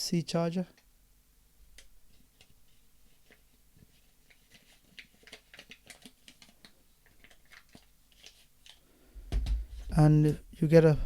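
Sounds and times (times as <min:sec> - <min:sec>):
packaging rustling: 0:02.1 - 0:09.9.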